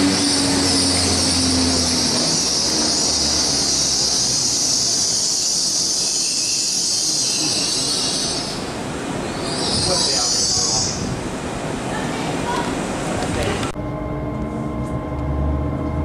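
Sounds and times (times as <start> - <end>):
low engine hum: 0.0 - 5.2, 12.4 - 16.0
train wheels hissing on rails: 0.0 - 13.2.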